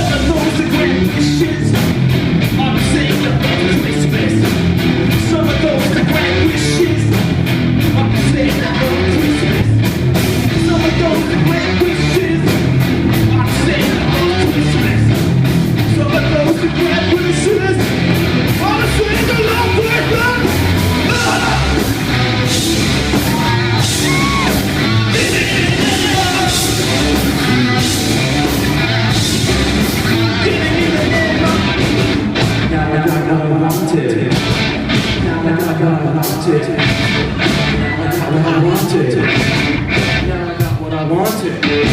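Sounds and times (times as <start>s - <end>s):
drums: 0.0s - 41.9s
electric guitars: 0.0s - 41.9s
person singing: 18.6s - 22.0s, 23.1s - 27.6s.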